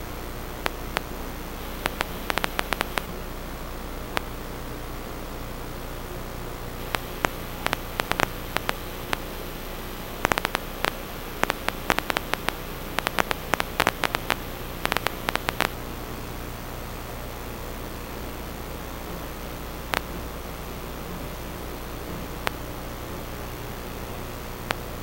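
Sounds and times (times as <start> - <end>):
low electrical hum: 0.0 - 25.0
static hiss: 0.0 - 25.0
short sharp clicks: 1.8 - 3.1, 6.9 - 9.3, 10.2 - 15.7.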